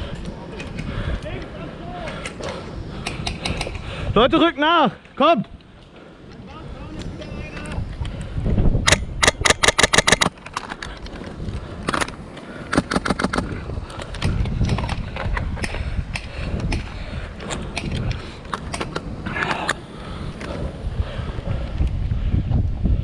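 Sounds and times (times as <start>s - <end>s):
airsoft guns firing: 8.9s - 10.3s.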